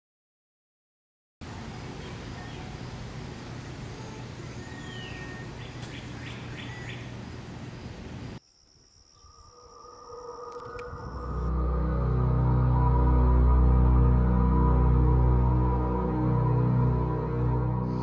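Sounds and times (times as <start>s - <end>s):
bird chirping: 3.9s - 8.0s, 9.0s - 11.5s
quiet music: 10.3s - 18.0s.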